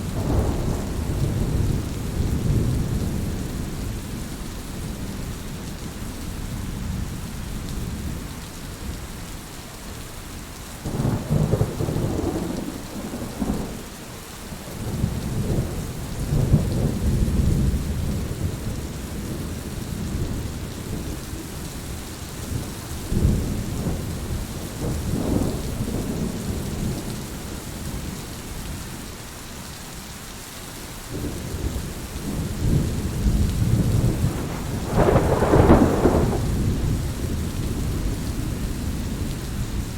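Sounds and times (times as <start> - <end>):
rolling thunder: 0.0 - 4.1, 10.8 - 27.2, 31.1 - 39.9
heavy rain falling: 0.0 - 39.9.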